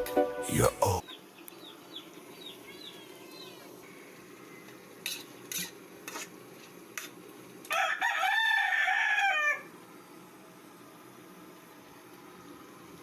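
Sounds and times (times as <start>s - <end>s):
rooster crowing: 7.7s - 9.8s.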